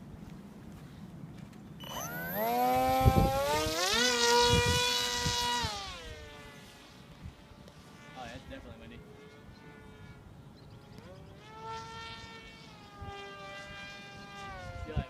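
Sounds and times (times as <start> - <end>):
electric motor and propeller whine: 0.4 - 15.0
wind thumps on microphone: 2.7 - 5.8.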